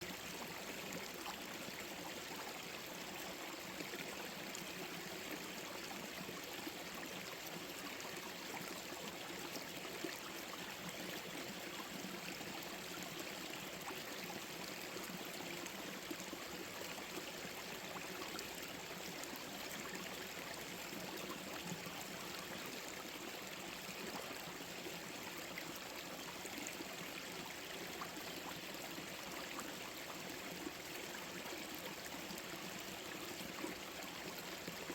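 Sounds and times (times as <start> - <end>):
stream flowing over rocks: 0.0 - 34.9.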